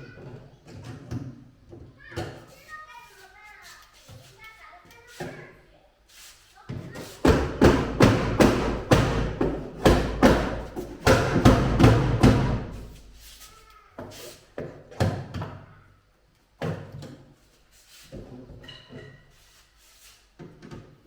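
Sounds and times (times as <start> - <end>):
heavy blows on wooden crate: 7.2 - 13.0.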